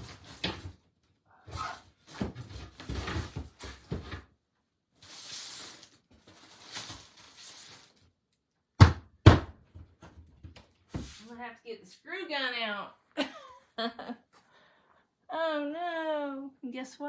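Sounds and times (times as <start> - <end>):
shelving unit clattering: 1.5 - 4.3.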